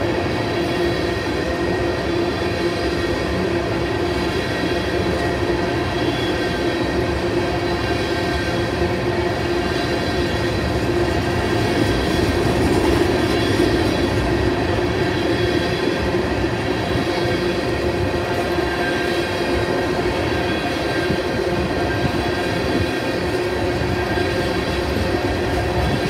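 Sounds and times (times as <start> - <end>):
train wheels on rail: 0.0 - 26.0.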